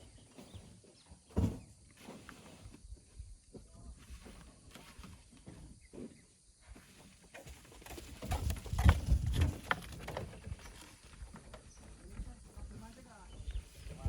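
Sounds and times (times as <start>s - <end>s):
heavy thuds and sharp knocks: 1.3s - 1.7s
knocks and scrapes: 7.0s - 11.6s.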